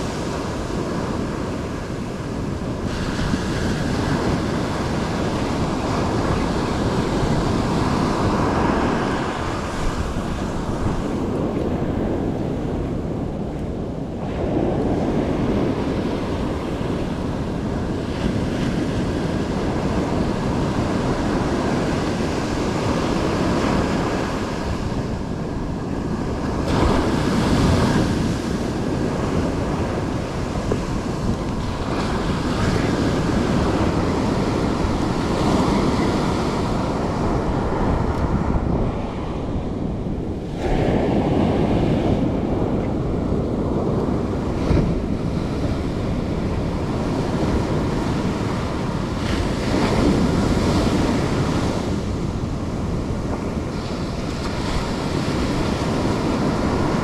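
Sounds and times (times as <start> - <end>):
ocean surf washing ashore: 0.0 - 57.0
wind rumbling on microphone: 0.0 - 57.0.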